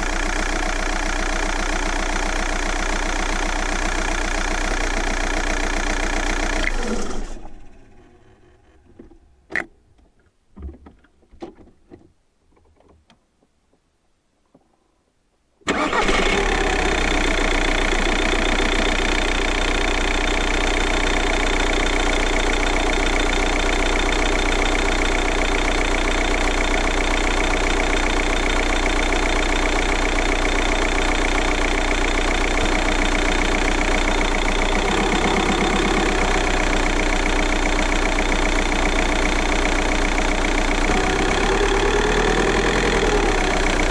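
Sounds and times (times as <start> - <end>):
diesel engine starting and idling: 0.0 - 9.4, 15.7 - 43.9
faint clicks and knocks: 9.0 - 14.8.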